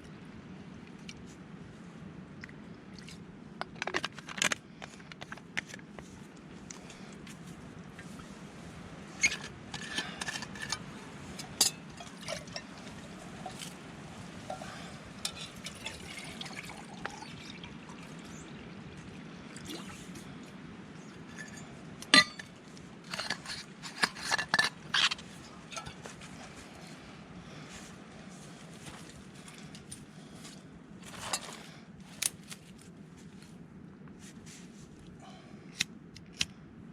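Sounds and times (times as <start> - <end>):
water pouring into a pot: 15.2 - 18.3.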